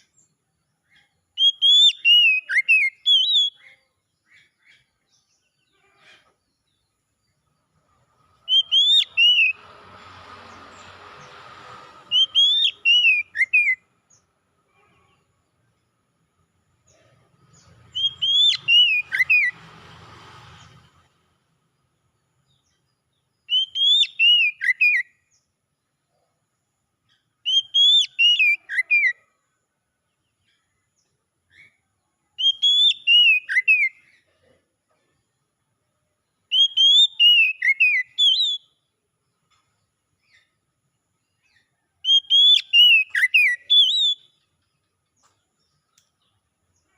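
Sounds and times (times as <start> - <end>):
bird singing falling whistles: 1.4 - 3.6, 8.5 - 9.6, 12.1 - 13.9, 17.9 - 19.6, 23.4 - 25.2, 27.4 - 29.2, 32.4 - 34.1, 36.5 - 38.8, 41.4 - 44.4.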